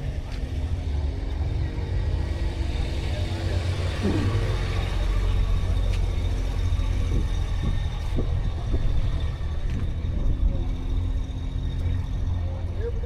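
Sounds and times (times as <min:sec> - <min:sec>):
faint voices of people: 0:00.0 - 0:13.0
low rumble: 0:04.0 - 0:05.5.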